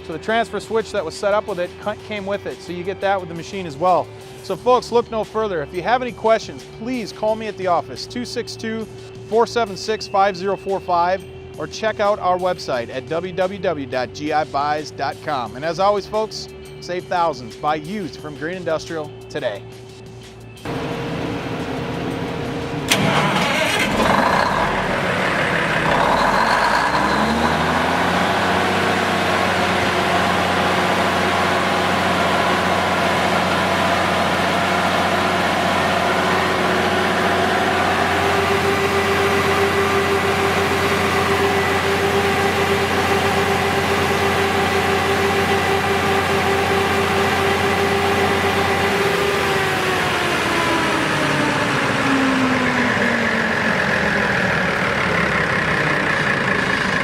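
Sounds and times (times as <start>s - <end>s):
diesel engine cranking and running: 20.7s - 57.0s.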